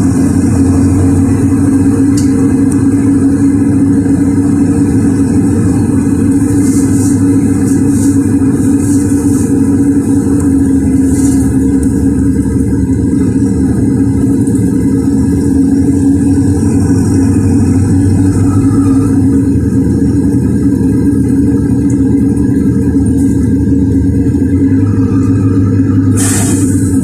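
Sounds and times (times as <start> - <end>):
bus engine running: 0.0 - 27.0.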